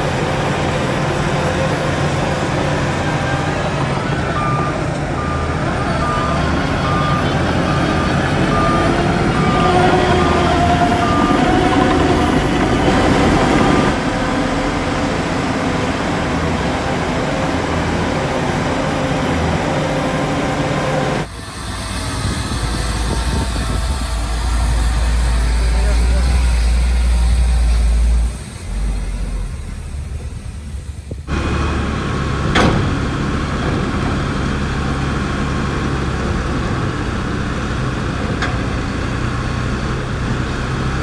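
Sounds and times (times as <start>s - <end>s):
reversing alarm beeping: 0.0s - 16.5s
diesel machinery running: 0.0s - 41.0s.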